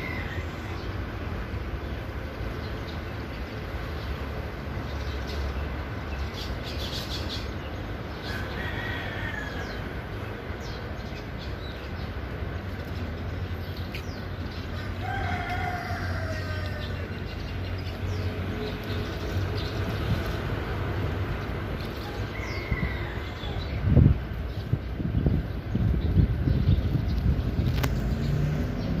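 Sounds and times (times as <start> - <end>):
steady low rumble: 16.3 - 29.0.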